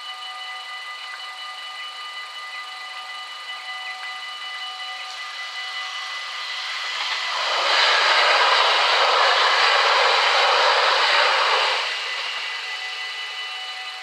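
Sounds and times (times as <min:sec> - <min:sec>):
electric train passing: 0:05.2 - 0:14.0.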